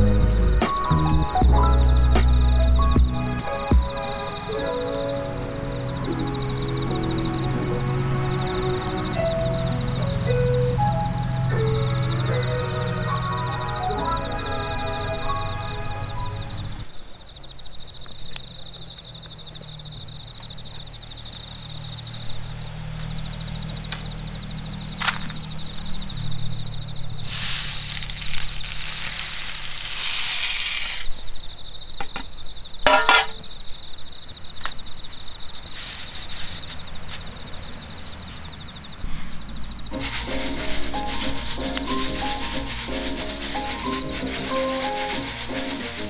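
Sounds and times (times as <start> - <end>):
rustling hiss: 0.0 - 17.1, 27.2 - 31.6, 35.4 - 46.0
insect trilling: 2.6 - 32.0, 35.4 - 46.0
coffee beans popping and crackling: 27.2 - 31.2, 40.0 - 46.0.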